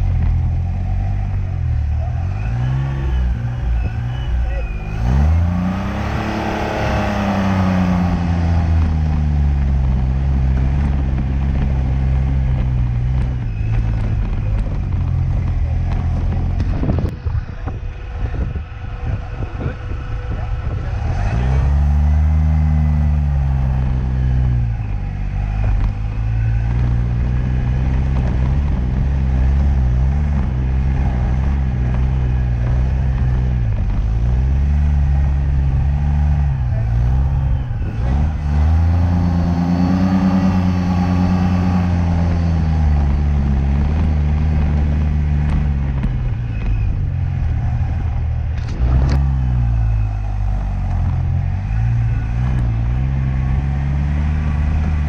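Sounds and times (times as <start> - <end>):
sports car engine revving: 0.0 - 55.0
engine knocks: 7.1 - 55.0.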